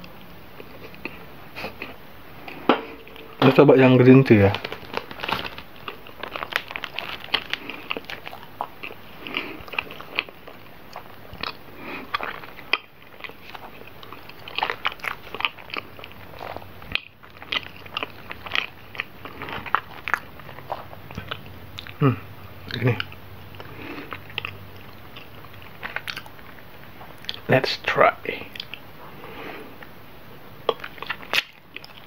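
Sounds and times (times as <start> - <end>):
chewing with wet mouth clicks: 5.8 - 22.0, 22.7 - 27.5, 28.5 - 28.8, 30.6 - 32.0.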